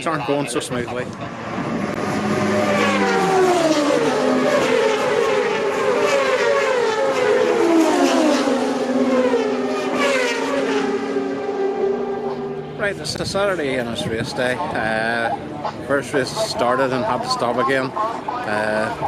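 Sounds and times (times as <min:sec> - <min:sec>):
racing motorcycles passing: 0:00.3 - 0:13.9.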